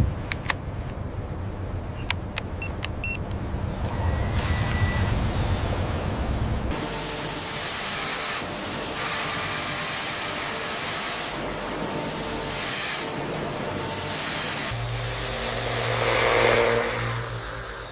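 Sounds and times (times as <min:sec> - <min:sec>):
low machine rumble: 0:03.2 - 0:07.0, 0:14.7 - 0:17.9
loud hissing spray: 0:04.2 - 0:17.9.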